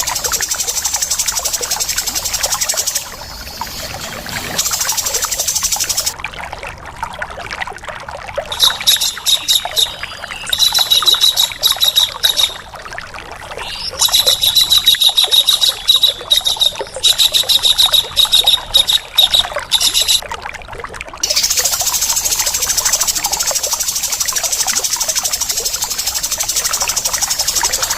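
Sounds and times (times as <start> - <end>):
songbird rattling chatter: 0.0 - 6.2, 21.2 - 27.9
trickle of running water: 0.0 - 27.9.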